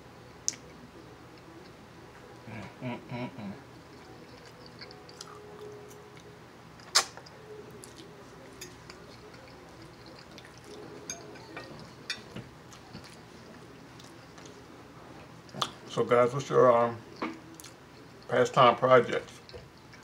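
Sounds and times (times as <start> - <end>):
close chewing: 3.7 - 14.7, 17.1 - 18.4
wet mouth clicks: 6.8 - 8.1.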